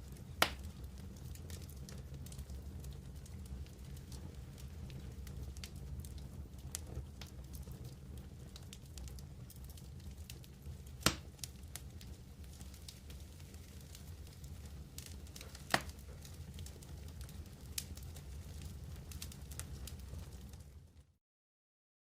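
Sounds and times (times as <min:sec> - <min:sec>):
campfire crackling: 0:00.0 - 0:21.0
loud fire pop: 0:00.4 - 0:00.7, 0:11.0 - 0:11.4, 0:15.4 - 0:16.1.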